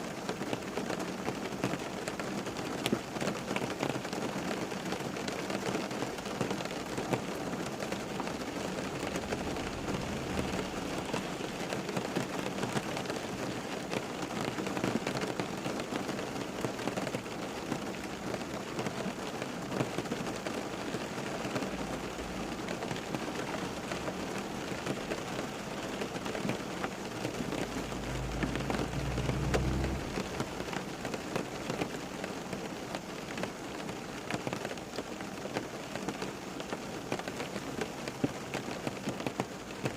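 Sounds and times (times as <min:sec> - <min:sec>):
steady rain falling: 0:00.0 - 0:39.9
low rumble: 0:08.4 - 0:12.6, 0:21.7 - 0:31.7.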